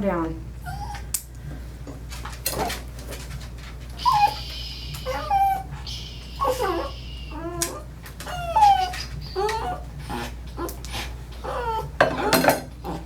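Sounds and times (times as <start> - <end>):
small dog whining: 0.6 - 1.1, 4.0 - 13.0
hissing noises: 2.4 - 11.4.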